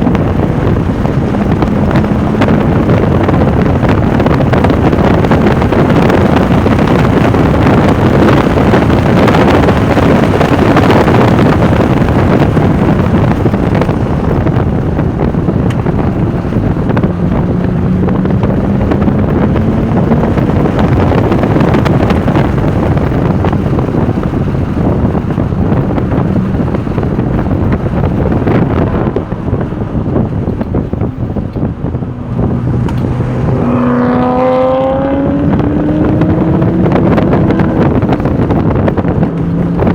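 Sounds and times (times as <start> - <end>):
car engine accelerating: 0.0 - 39.9
wind and road noise: 0.0 - 39.9.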